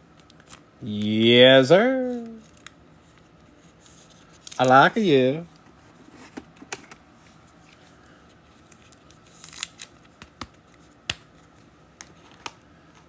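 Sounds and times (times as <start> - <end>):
cards and sleeves clicking: 9.4 - 11.3.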